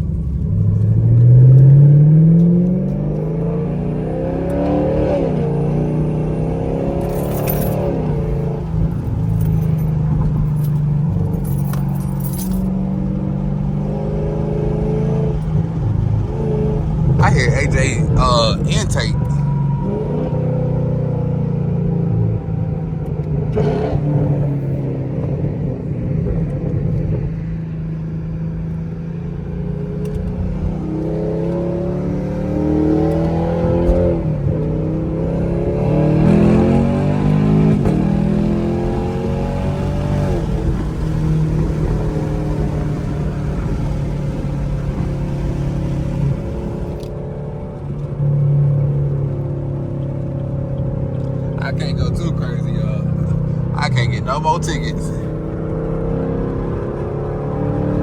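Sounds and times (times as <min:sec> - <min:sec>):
car exhaust engine note: 0:37.4 - 0:47.1, 0:51.5 - 0:55.7.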